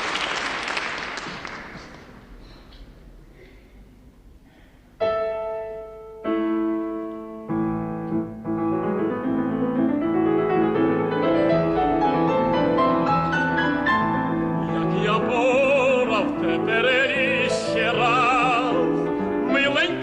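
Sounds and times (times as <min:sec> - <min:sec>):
piano chords and accompaniment: 0:04.9 - 0:20.0.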